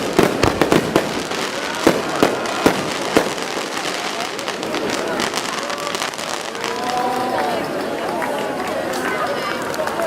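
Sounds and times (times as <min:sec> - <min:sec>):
fireworks bangs: 0:00.0 - 0:07.4
fireworks crackling hiss: 0:00.0 - 0:07.4.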